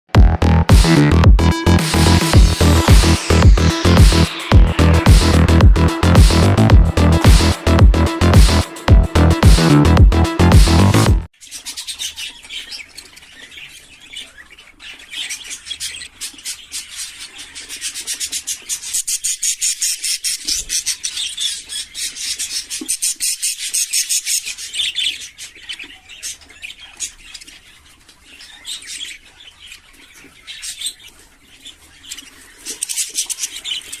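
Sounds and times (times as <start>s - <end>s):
budgerigars chirping and chattering: 11.4s - 34.0s.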